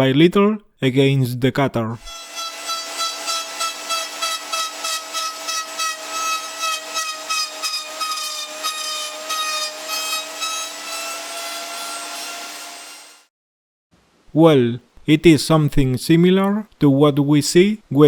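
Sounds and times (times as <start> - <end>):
router bit cutting wood: 2.0 - 13.3
router motor whine: 2.1 - 13.2.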